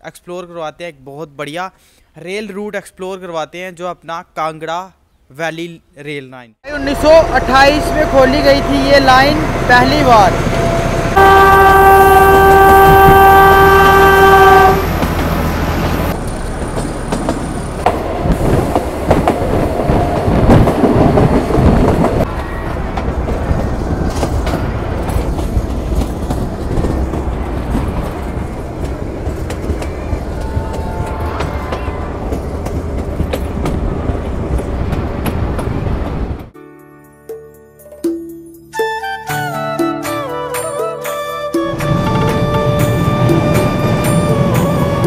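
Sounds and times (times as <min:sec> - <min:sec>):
train wheels rumbling on rails: 0:06.7 - 0:36.6, 0:41.7 - 0:45.0
locomotive horn blast: 0:10.3 - 0:16.2, 0:41.6 - 0:45.0.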